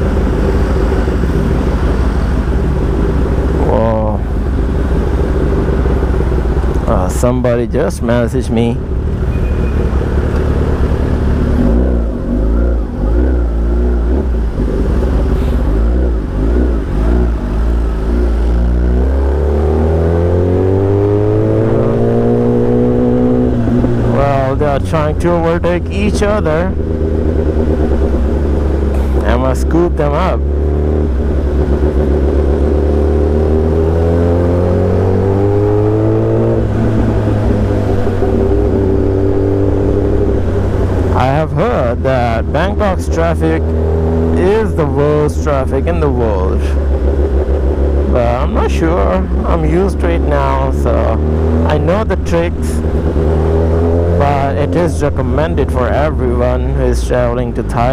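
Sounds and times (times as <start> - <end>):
motorcycle engine revving: 0.0 - 57.9
traffic rumble: 0.0 - 57.9
wind: 0.0 - 57.9.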